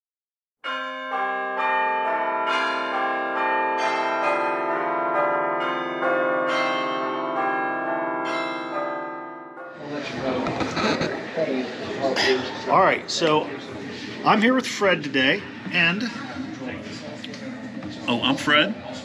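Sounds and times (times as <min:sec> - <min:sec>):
bell-like chimes ringing: 0:00.6 - 0:10.5.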